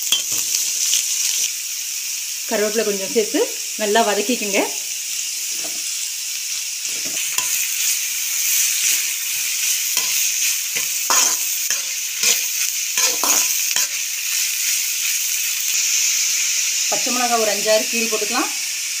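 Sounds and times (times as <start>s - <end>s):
onions sizzling in hot oil: 0.0s - 19.0s
metal spatula scraping and knocking: 10.8s - 12.4s, 13.0s - 13.5s.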